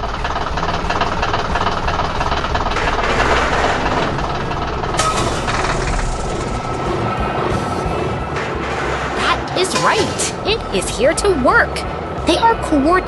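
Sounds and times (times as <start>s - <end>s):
mechanical clatter: 0.0s - 10.6s
machinery engine rumbling: 0.0s - 13.0s.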